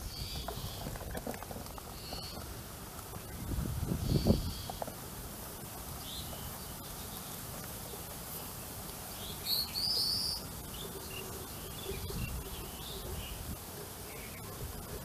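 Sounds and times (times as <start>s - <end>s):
bird chirping: 0.0s - 2.5s, 6.0s - 15.0s
faint low background noise: 0.0s - 15.0s.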